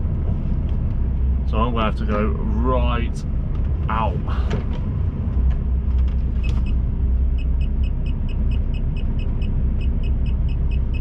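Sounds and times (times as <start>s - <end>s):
lorry diesel engine rumbling: 0.0s - 11.0s
rapid electronic warning beeps: 7.4s - 11.0s.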